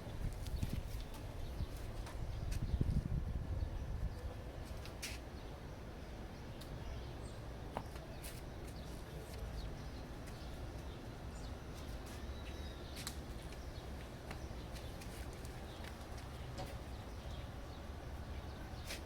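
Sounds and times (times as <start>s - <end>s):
wind rumble on microphone: 0.0s - 4.7s.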